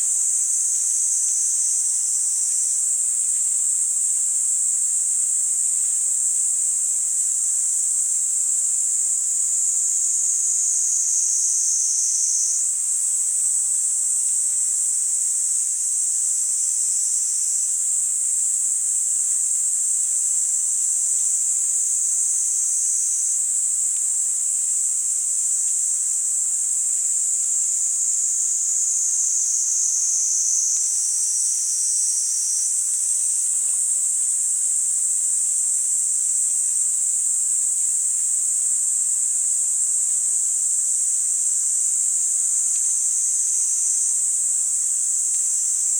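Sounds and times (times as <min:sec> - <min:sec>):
lower-pitched cicada buzz: 0:00.0 - 0:45.9
cicadas buzzing shrilly: 0:09.3 - 0:14.7, 0:15.9 - 0:35.2.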